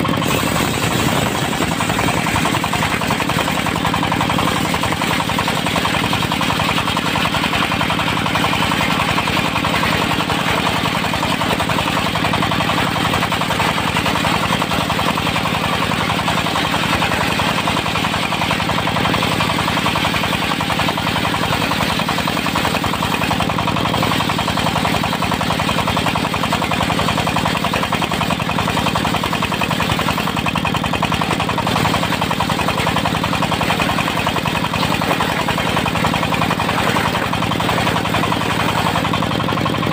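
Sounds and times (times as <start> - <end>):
sawmill diesel engine running: 0.0 - 39.9.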